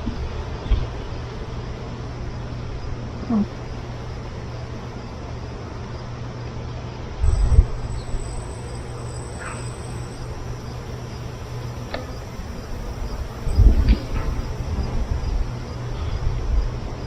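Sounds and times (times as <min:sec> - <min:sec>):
faint insect sounds: 0:00.0 - 0:17.0
steady low hum: 0:00.0 - 0:17.0
thin high tone: 0:07.3 - 0:14.7.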